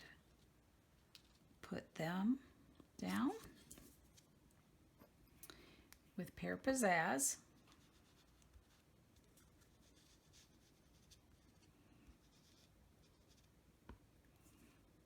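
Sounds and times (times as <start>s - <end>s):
paper and crafting tools handling: 3.0s - 4.3s.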